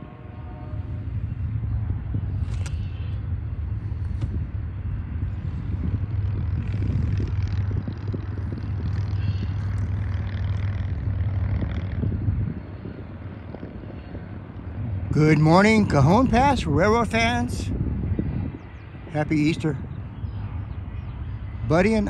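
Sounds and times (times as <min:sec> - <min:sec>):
diesel locomotive engine rumble: 0:00.0 - 0:22.0.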